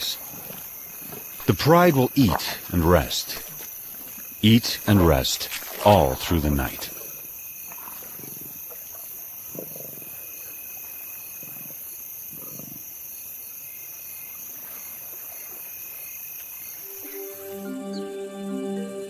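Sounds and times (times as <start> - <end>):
crickets trilling: 0.0 - 18.9
lions growling low: 9.5 - 10.3.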